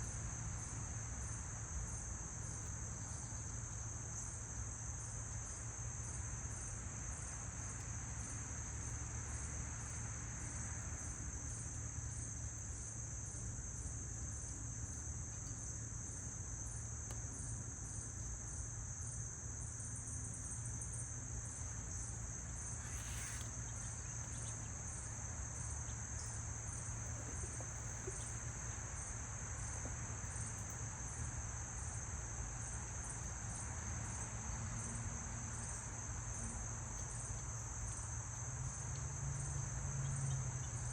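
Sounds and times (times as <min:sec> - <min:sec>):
insects trilling: 0:01.9 - 0:40.9
hissing rasp: 0:22.8 - 0:23.5.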